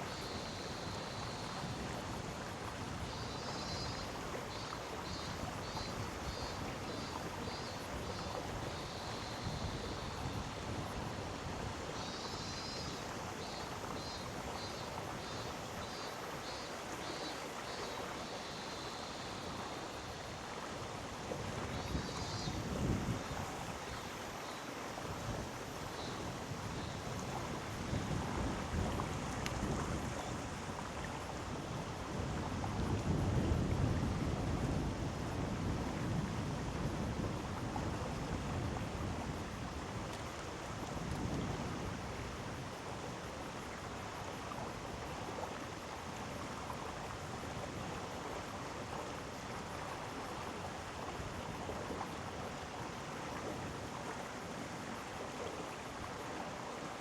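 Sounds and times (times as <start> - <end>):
stream water rushing: 0.0 - 57.0
wind rumbling on microphone: 20.2 - 24.0, 25.0 - 48.1.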